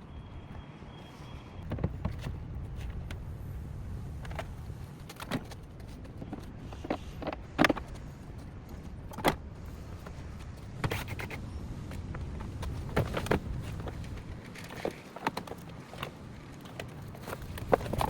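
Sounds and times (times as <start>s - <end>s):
clicks and knocks of car work: 4.3s - 11.4s, 12.2s - 18.0s.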